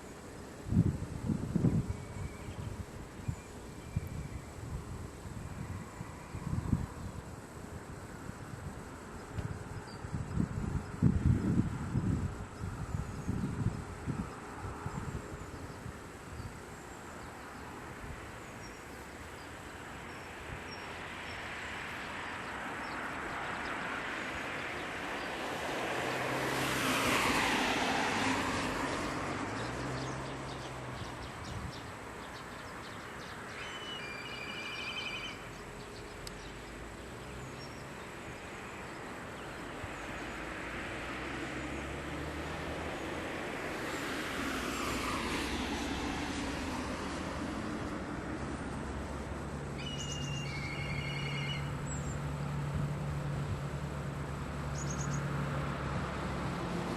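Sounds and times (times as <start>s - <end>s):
road vehicle passing by: 0.0s - 56.9s.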